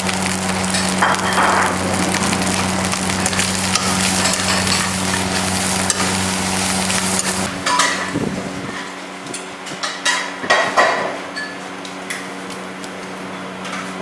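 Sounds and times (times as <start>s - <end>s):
food sizzling in a hot pan: 0.0s - 8.7s
steady low hum: 0.0s - 10.0s.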